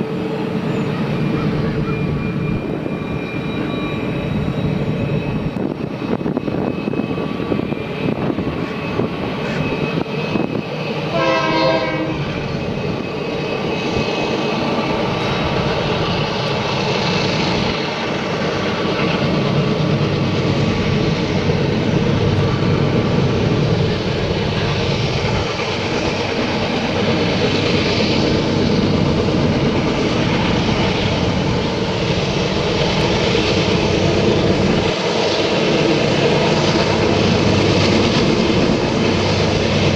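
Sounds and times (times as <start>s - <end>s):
train rumbling: 0.0s - 39.9s
train horn: 11.1s - 12.4s.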